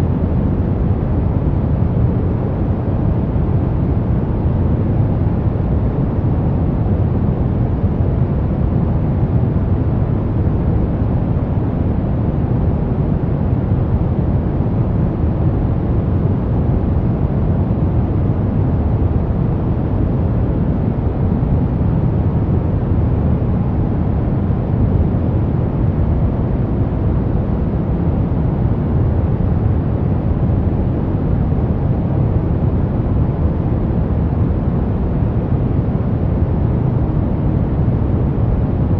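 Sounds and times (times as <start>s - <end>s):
brown noise: 0.0s - 38.9s.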